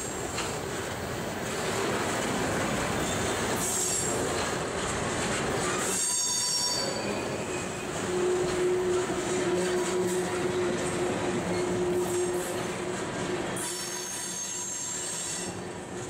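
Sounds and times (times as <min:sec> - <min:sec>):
train wheels grinding on rails: 0:00.0 - 0:16.0
wheel squeals: 0:05.6 - 0:12.5.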